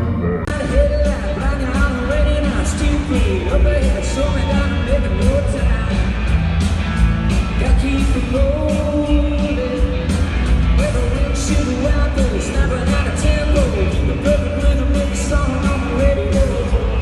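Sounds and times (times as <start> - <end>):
sliding lead melody: 0.0 - 4.2
live band playing: 0.0 - 17.0.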